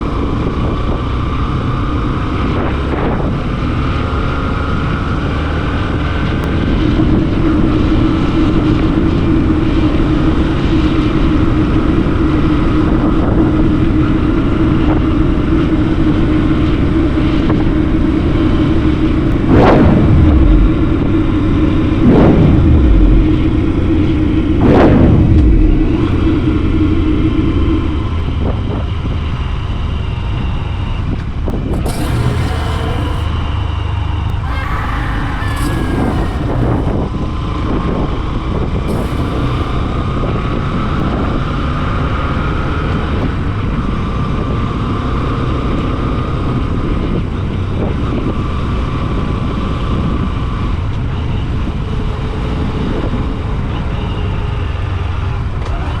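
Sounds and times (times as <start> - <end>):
motorcycle engine droning: 19.2 - 27.3, 31.7 - 37.2
sweeps falling in pitch: 34.4 - 37.0.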